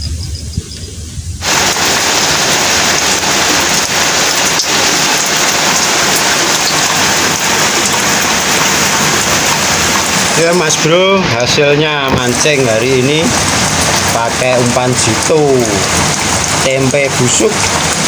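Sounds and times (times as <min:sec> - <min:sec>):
heavy rain on concrete: 0:01.4 - 0:18.0.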